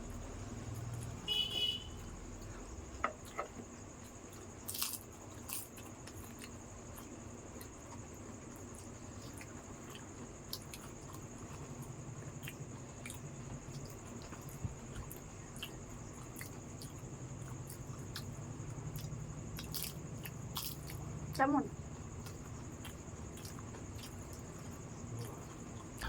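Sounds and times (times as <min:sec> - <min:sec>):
steady background hum: 0:00.0 - 0:26.0
wet chewing and crunching: 0:02.3 - 0:26.0.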